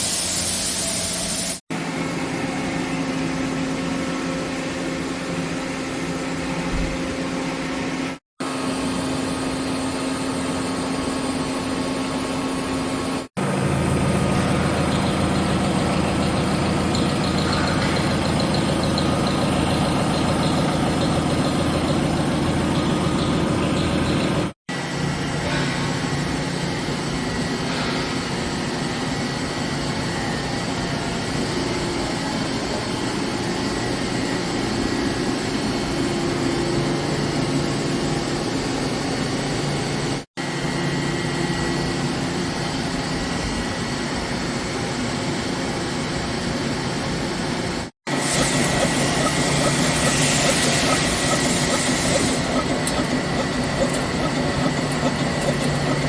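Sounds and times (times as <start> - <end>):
hiss: 0.0 - 1.6, 48.1 - 53.4
machine tool hum and whine: 0.7 - 56.0.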